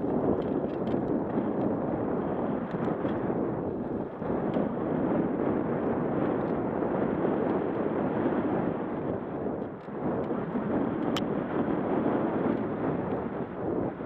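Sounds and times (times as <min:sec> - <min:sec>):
bike tyres on dirt trail: 0:00.0 - 0:10.3
wind rushing over microphone: 0:00.0 - 0:14.0.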